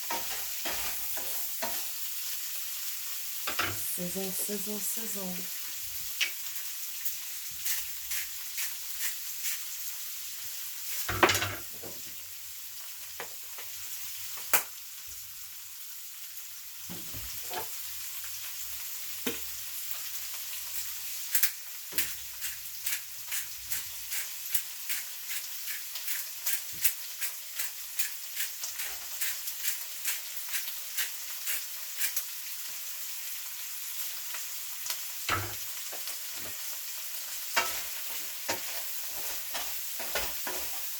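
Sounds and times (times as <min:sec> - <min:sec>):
food sizzling in a pan: 0:00.0 - 0:40.9.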